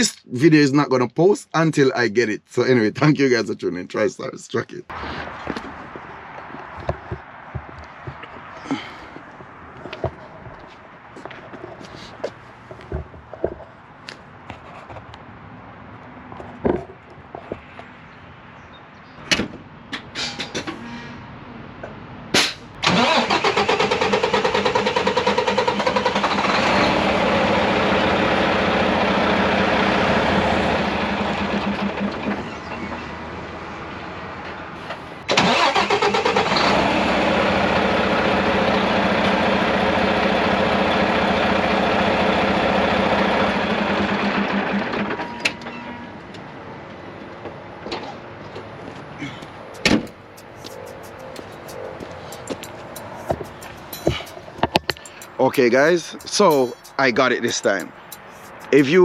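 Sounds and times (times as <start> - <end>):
sharp clunk: 22.4 - 22.7, 49.8 - 50.2
diesel engine cranking: 22.4 - 33.3, 34.8 - 46.1, 49.2 - 59.0.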